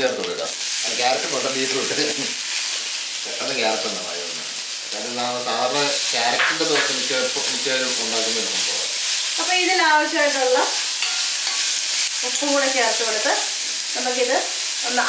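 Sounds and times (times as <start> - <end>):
vegetables sizzling in hot oil: 0.0 - 15.0
steel ladle stirring: 11.0 - 12.5.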